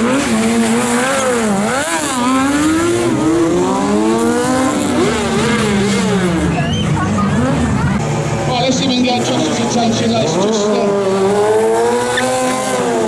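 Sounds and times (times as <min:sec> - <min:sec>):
vehicle engine revving: 0:00.0 - 0:13.0.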